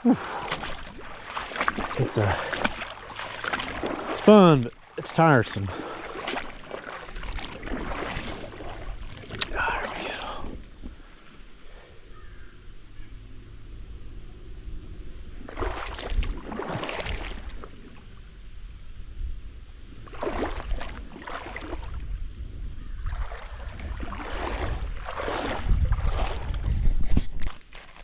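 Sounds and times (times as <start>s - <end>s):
footsteps splashing in shallow water: 0.0s - 11.0s, 15.4s - 18.0s, 20.0s - 22.1s, 23.0s - 28.0s.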